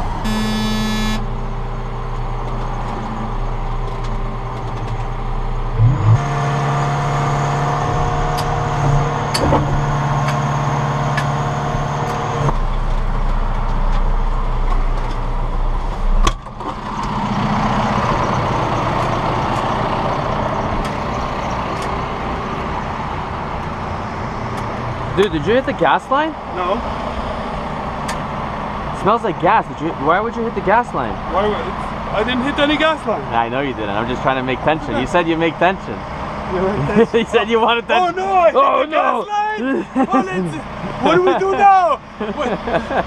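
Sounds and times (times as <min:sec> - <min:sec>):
excavator engine running: 0:00.0 - 0:25.6.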